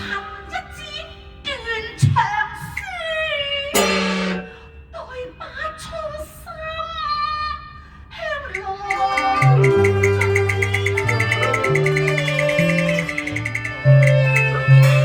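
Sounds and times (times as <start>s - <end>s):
string instruments: 0.0s - 2.9s, 3.6s - 4.9s, 8.5s - 15.0s
opera singing voice: 0.0s - 15.0s.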